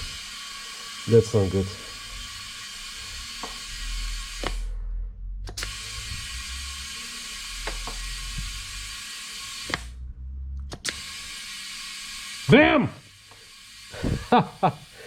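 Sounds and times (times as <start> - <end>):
compressed air hissing into tyre: 0.0 - 4.8, 5.5 - 10.0, 10.8 - 15.0
low steady hum: 4.0 - 8.7, 9.8 - 10.8.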